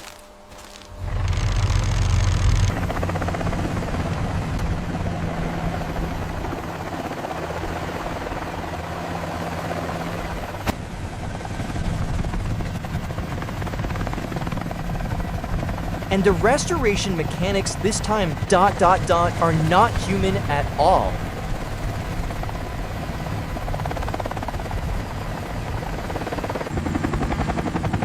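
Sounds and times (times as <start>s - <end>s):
low mechanical drone: 0.0s - 6.9s.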